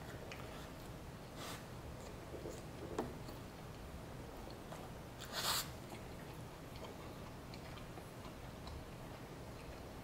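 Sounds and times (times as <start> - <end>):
person chewing: 4.4 - 10.0.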